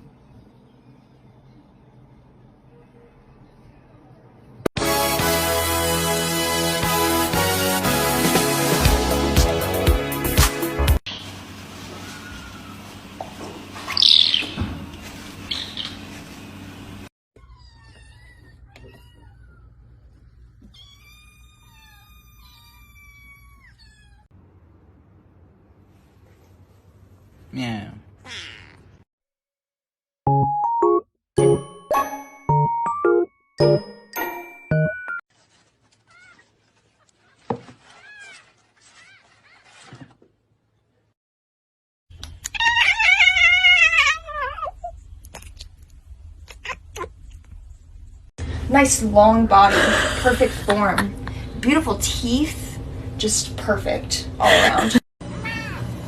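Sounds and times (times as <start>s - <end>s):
cat meowing: 17.4s - 19.8s, 20.7s - 24.3s, 28.2s - 29.0s, 42.4s - 44.9s, 55.3s - 55.9s.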